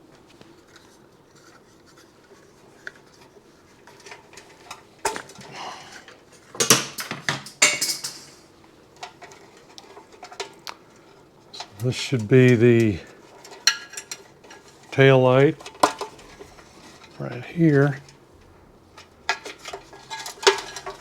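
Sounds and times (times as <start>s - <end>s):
metal parts clinking and rattling: 3.9s - 10.6s, 11.6s - 15.0s, 18.9s - 21.0s.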